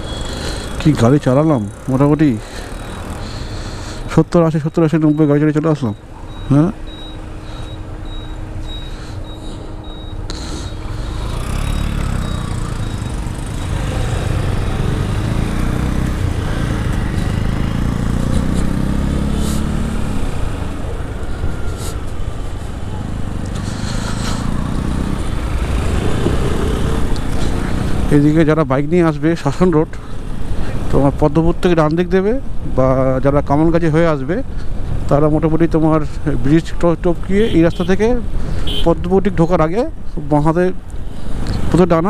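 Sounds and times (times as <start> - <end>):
road and wind noise: 0.0 - 42.0
motorcycle engine running: 10.9 - 20.9.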